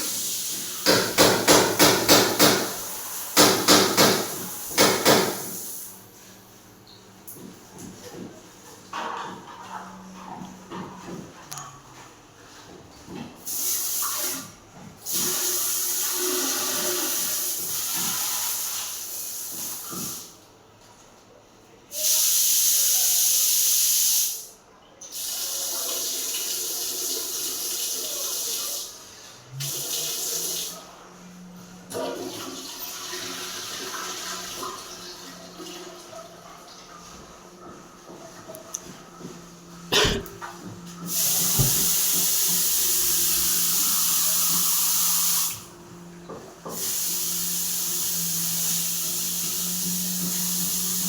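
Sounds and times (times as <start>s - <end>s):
water spraying hiss: 13.5s - 14.5s, 15.1s - 20.3s, 41.0s - 45.8s, 46.6s - 51.0s
water gushing from outlet: 29.6s - 30.8s, 31.9s - 37.1s, 39.9s - 51.0s.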